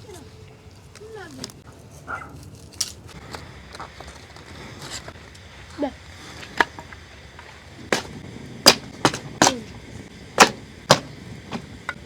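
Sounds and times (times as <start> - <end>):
axe chopping wood: 7.9 - 9.8, 10.4 - 12.0.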